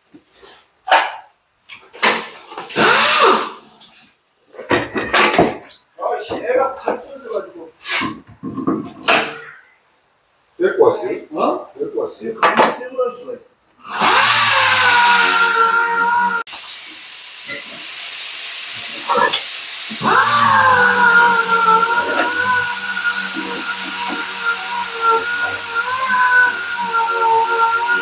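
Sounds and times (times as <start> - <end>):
power tool whining: 2.7 - 3.6, 13.8 - 28.0.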